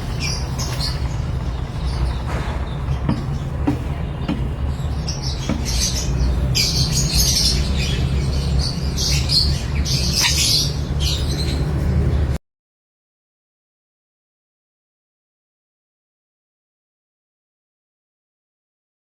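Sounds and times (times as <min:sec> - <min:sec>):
parrots chirping and squawking: 0:00.0 - 0:12.2.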